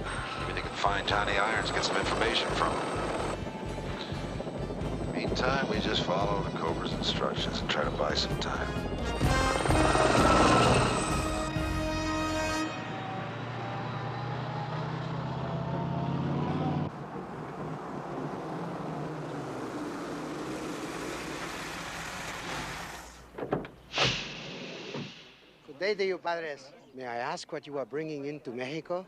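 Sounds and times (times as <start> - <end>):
helicopter rotor chop: 0.0 - 11.7, 16.9 - 23.2
vehicle engine running: 0.0 - 11.8, 16.9 - 23.2
background music: 0.0 - 12.9.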